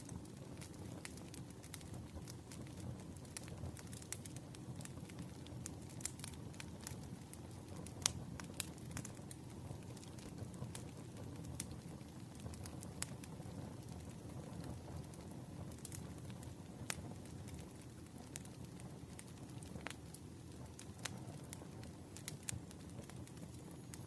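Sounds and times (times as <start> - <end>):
campfire flames rumbling: 0.0 - 24.0
firewood crackling and popping: 0.0 - 24.0.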